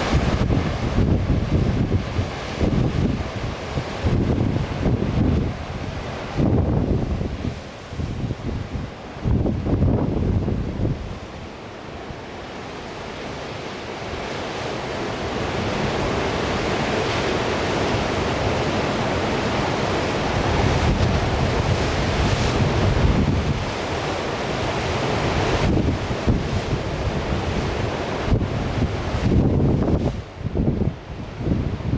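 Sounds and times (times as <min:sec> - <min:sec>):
wind buffeting microphone: 0:00.0 - 0:11.2, 0:20.0 - 0:31.9.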